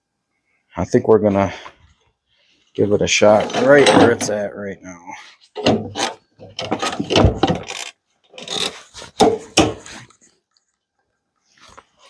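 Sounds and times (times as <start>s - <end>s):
wood knocking and scraping on metal: 3.2s - 4.4s, 5.6s - 10.0s.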